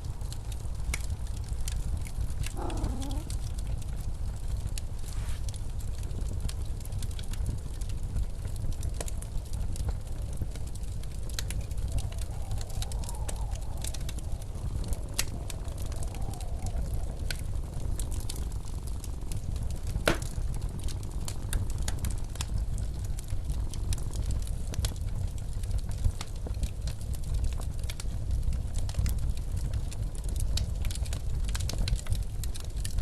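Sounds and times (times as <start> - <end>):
low rumble of storm wind: 0.0 - 33.0
wood fire crackling: 0.0 - 33.0
wavering wind howl: 0.1 - 3.8, 8.3 - 20.6
fire popping sharply: 2.4 - 3.5, 8.4 - 21.1.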